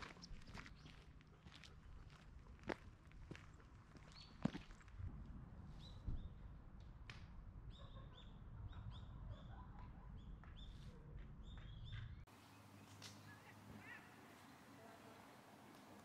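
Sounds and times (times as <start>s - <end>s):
small birds chirping: 0.0s - 2.2s, 4.0s - 4.6s, 7.7s - 16.0s.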